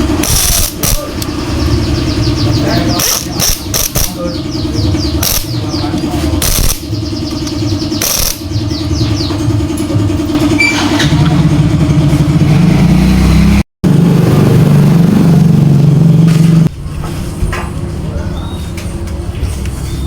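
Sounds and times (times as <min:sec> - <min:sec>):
small motorcycle engine revving: 0:00.0 - 0:16.7.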